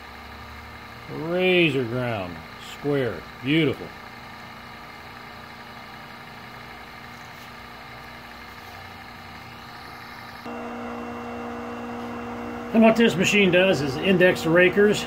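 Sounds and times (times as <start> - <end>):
grinder electric motor humming: 0.0 - 15.0
louder low hum: 9.2 - 15.0.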